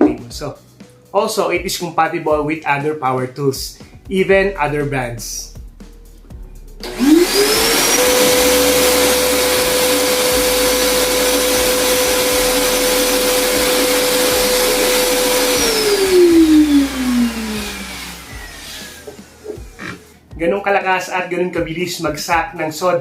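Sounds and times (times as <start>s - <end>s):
shop vacuum motor whine: 6.8s - 20.1s.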